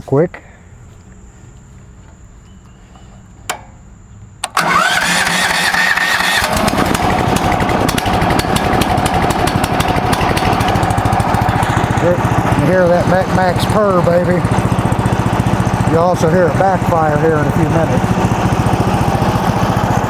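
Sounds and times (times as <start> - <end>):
rising engine whine: 0.6 - 20.0
sawmill engine running: 4.4 - 20.0.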